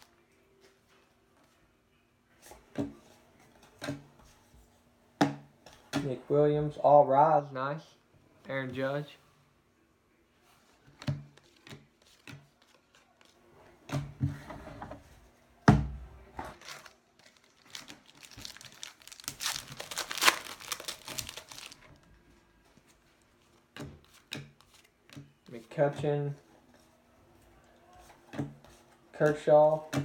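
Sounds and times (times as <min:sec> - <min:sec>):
foil wrapper tearing and crinkling: 0:16.6 - 0:22.0.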